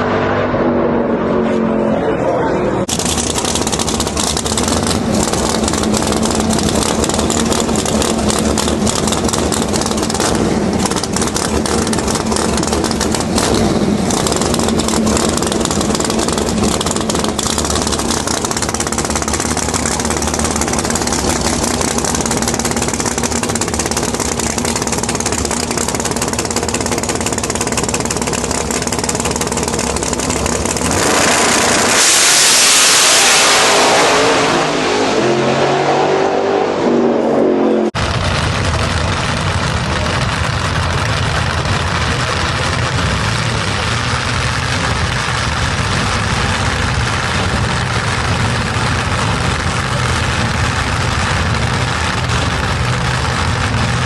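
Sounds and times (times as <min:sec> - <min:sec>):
loud rushing noise: 0:00.0 - 0:54.0
race vehicle engine running: 0:00.0 - 0:54.0
voices: 0:01.4 - 0:02.9.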